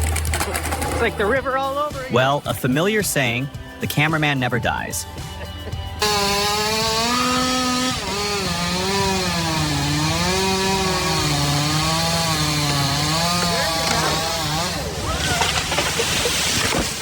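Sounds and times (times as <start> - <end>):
chainsaw cutting wood: 6.0 - 17.0.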